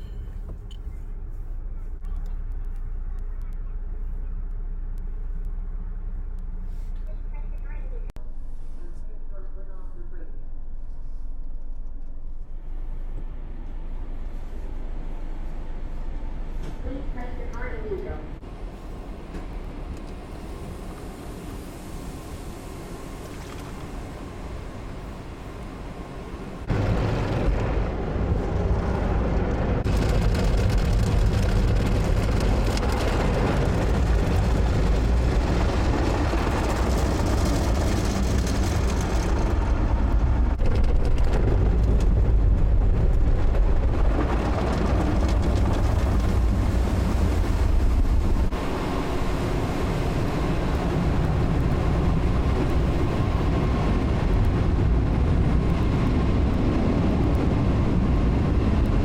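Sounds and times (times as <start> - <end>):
heavy low rumble: 0.0 - 59.0
car wash water spray: 20.0 - 39.4.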